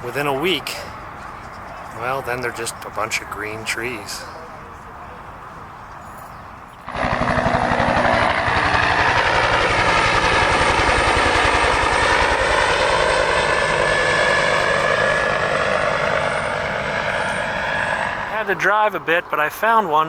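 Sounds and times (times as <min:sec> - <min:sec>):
turbine whine: 0:05.9 - 0:18.7
helicopter rotor chop: 0:06.8 - 0:19.0.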